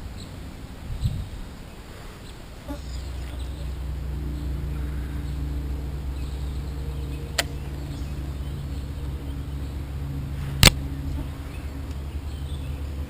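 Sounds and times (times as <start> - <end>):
low engine-like hum: 0.0 - 13.0.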